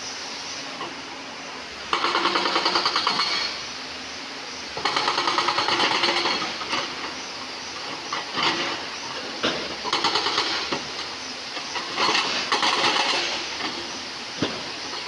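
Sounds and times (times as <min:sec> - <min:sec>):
hydraulic rock breaker hammering stone: 0:01.9 - 0:03.5, 0:04.8 - 0:07.1, 0:07.8 - 0:15.0.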